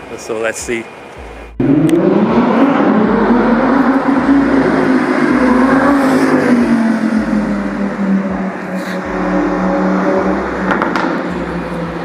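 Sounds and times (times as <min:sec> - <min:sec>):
car engine revving: 0:01.2 - 0:12.0.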